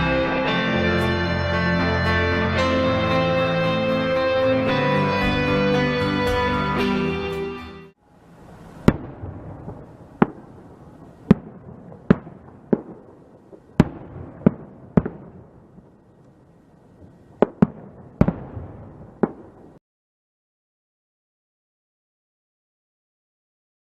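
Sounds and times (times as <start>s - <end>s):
faint background noise: 7.9s - 19.8s
fireworks bangs: 8.2s - 19.8s.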